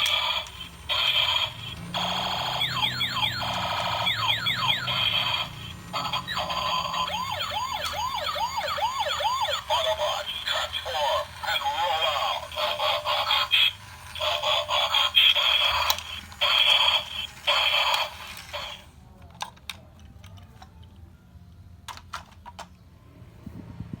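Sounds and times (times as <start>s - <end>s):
toy electronic sound effects: 0.0s - 19.0s.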